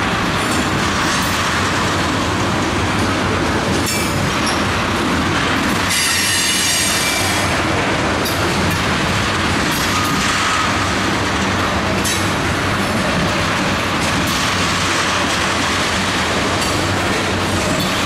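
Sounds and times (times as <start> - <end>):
train wheels rumbling on rails: 0.0 - 18.0
high wheel squeal: 5.9 - 7.4.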